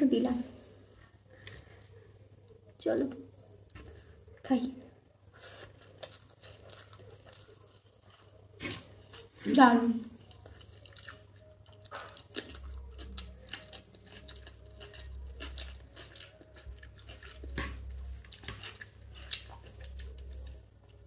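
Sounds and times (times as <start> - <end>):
close chewing with mouth clicks: 5.3 - 21.0.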